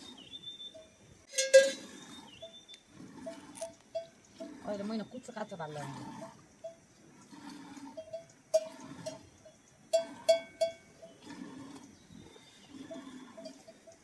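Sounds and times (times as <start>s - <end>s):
livestock bell clinking: 0.7s - 1.8s, 3.3s - 4.2s, 8.0s - 11.2s, 13.0s - 14.0s.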